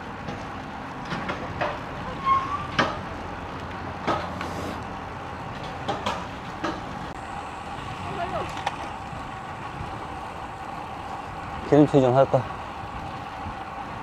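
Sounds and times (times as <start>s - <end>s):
wind and tyre noise: 0.0s - 14.0s
bike squeak: 2.0s - 3.0s
bike clicks and knocks: 2.7s - 3.0s, 3.6s - 4.6s, 5.6s - 7.0s.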